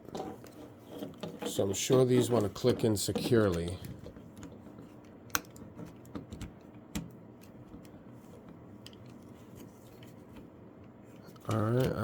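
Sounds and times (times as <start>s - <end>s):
plastic toy parts rubbing: 0.0s - 3.9s.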